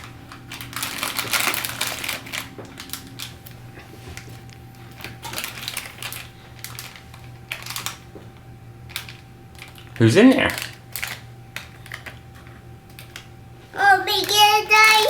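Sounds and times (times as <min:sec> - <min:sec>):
plastic packet crinkling and tearing: 0:00.0 - 0:03.6, 0:04.2 - 0:08.1, 0:08.9 - 0:13.3
small clicks and rustles: 0:00.0 - 0:13.3, 0:14.1 - 0:15.0.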